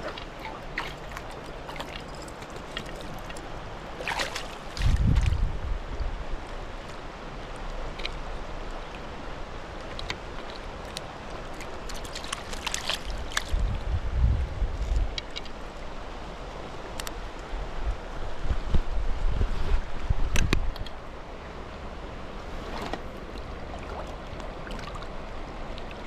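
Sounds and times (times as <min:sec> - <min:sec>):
creek water running: 0:00.0 - 0:18.5, 0:20.8 - 0:26.0
light clicks and rustles: 0:00.1 - 0:03.5, 0:14.7 - 0:15.7
wind buffeting microphone: 0:04.7 - 0:06.3, 0:13.1 - 0:15.2, 0:17.6 - 0:20.9.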